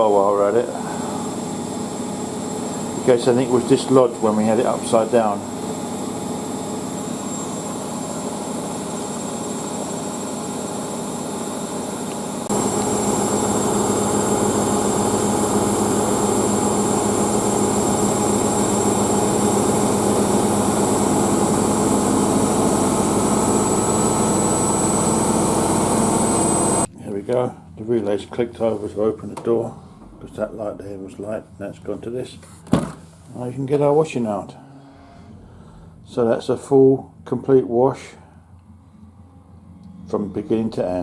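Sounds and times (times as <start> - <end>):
washing machine whine and hum: 0.0 - 26.9.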